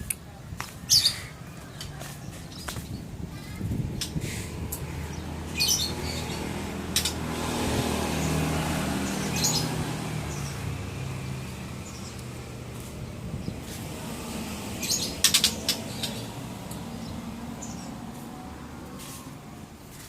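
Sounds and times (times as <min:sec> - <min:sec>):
motor vehicle hum: 0:00.0 - 0:20.0.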